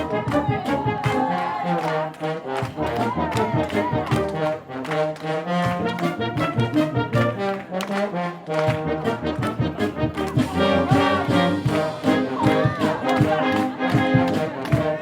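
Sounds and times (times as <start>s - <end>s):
steady percussion beat: 0.0s - 1.3s, 2.6s - 4.6s, 5.5s - 7.4s, 8.7s - 15.0s
brass sustained chords: 0.0s - 15.0s.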